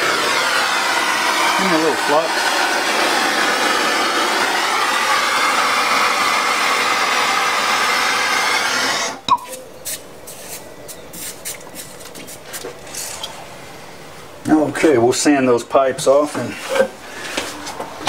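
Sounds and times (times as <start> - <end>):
steady hiss: 0.0 - 17.6.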